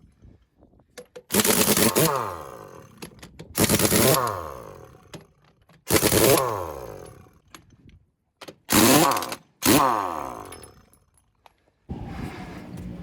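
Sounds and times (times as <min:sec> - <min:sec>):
impact wrench rattling: 0:01.0 - 0:07.8.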